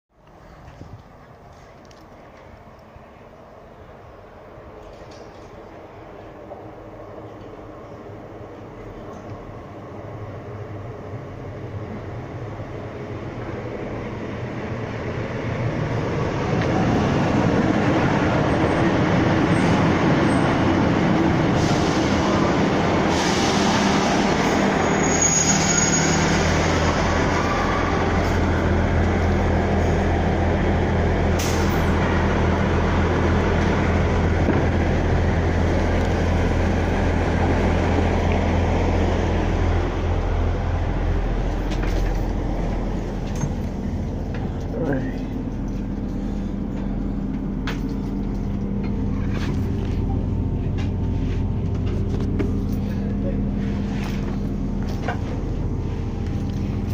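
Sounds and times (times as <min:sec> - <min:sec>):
train arriving: 0:00.2 - 0:56.9
train engine idling: 0:00.2 - 0:56.9
train brake squeal: 0:23.1 - 0:28.2.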